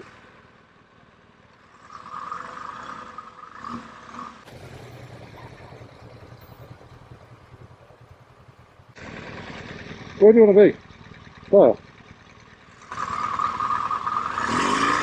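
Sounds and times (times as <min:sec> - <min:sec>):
muffled vehicle engines idling: 0:04.2 - 0:14.2.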